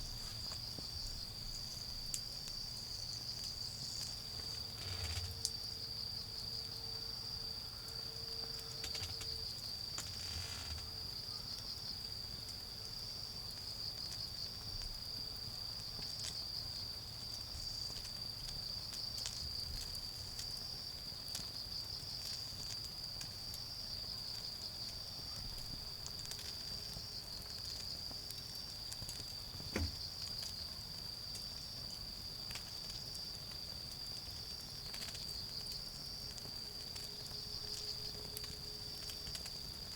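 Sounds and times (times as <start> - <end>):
wood fire crackling: 0.0 - 6.6, 8.0 - 39.9
crickets chirping chorus: 0.0 - 39.9.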